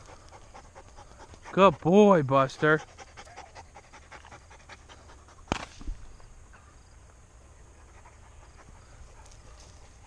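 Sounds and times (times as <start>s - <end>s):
dog panting: 0.0s - 5.5s, 7.7s - 10.0s.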